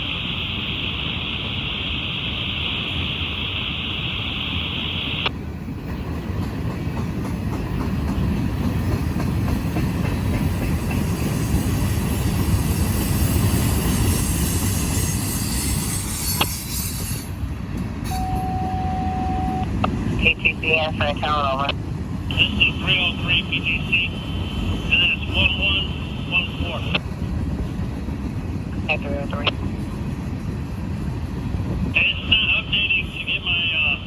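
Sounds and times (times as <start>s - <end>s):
radio scanner hiss: 0.0s - 5.3s, 20.2s - 27.0s
train wheels clattering over rails: 5.4s - 18.3s.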